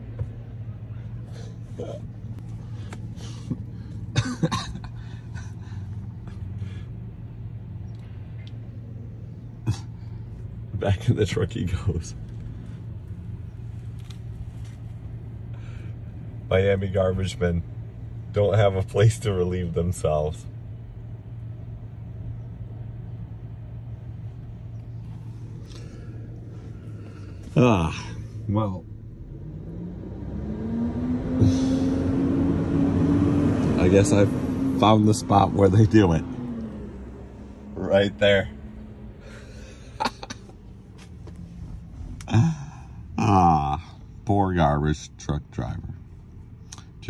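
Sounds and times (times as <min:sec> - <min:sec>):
low engine hum: 0:00.0 - 0:47.0
person coughing: 0:04.1 - 0:04.9
truck engine idling: 0:19.9 - 0:29.3.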